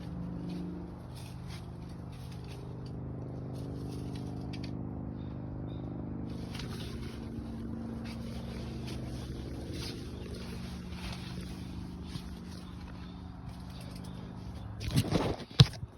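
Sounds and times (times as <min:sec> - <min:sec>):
engine running steadily: 0:00.0 - 0:15.9
light scraping and crackling: 0:06.3 - 0:15.9.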